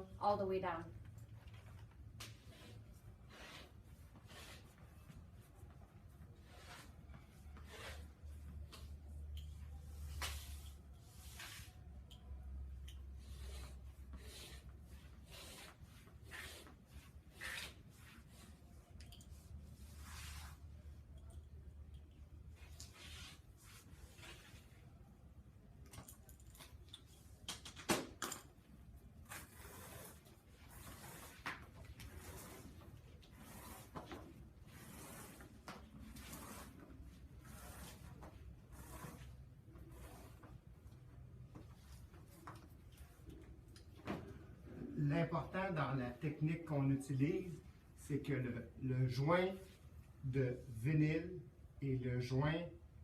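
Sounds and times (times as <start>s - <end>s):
faint scraping strokes: 1.6s - 11.9s, 13.2s - 21.0s, 29.2s - 40.7s
scraping on vinyl flooring: 29.2s - 40.6s.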